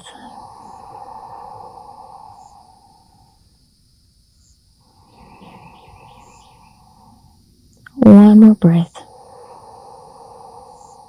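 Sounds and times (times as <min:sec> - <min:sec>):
insects chirping: 0:00.0 - 0:11.0
soft hiss: 0:00.0 - 0:11.0
birds chirping: 0:04.4 - 0:09.0.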